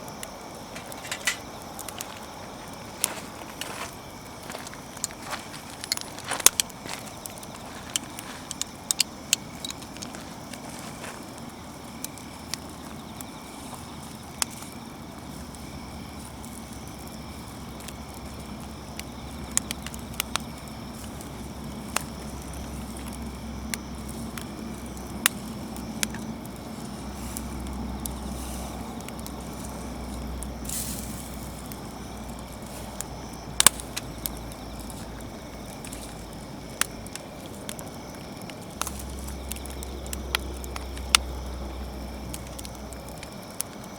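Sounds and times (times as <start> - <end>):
campfire crackling: 0.0 - 43.9
steady hiss: 0.0 - 43.9
sharp pops of fire: 0.1 - 10.6, 32.9 - 41.3.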